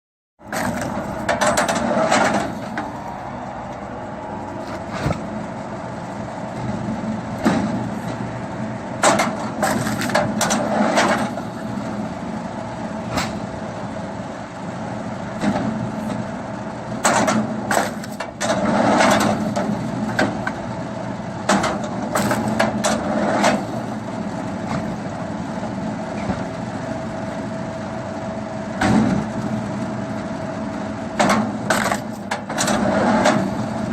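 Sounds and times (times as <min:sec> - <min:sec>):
wood splitting machine running: 0:00.4 - 0:03.8, 0:06.1 - 0:13.9, 0:14.9 - 0:26.5, 0:31.0 - 0:33.9
logs cracking and banging: 0:00.5 - 0:02.9, 0:09.0 - 0:11.4, 0:17.0 - 0:20.6, 0:21.5 - 0:23.6, 0:31.2 - 0:33.4.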